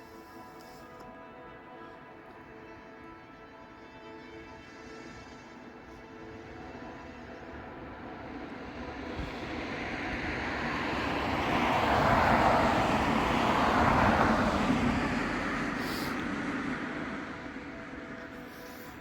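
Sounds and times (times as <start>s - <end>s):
vehicle passing on road: 6.6s - 19.0s.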